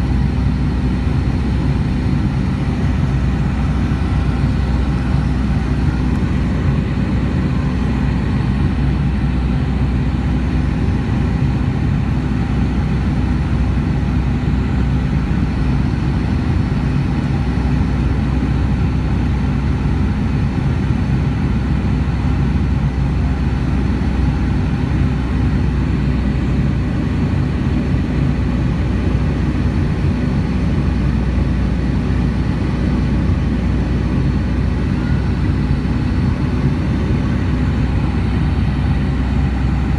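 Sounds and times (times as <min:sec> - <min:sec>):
low hum: 0:00.0 - 0:12.6
jet engine drone in cabin: 0:00.0 - 0:39.9.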